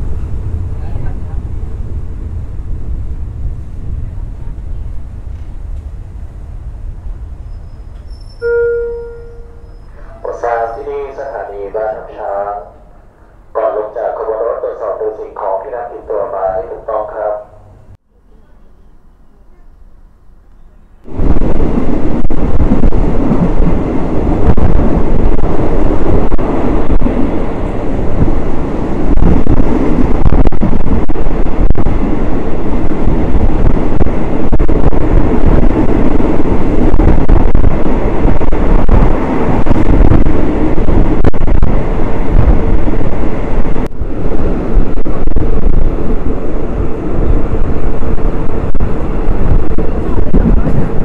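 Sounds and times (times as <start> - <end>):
wind buffeting microphone: 0.0 - 8.4, 21.0 - 51.0
train rumbling on track: 0.0 - 51.0.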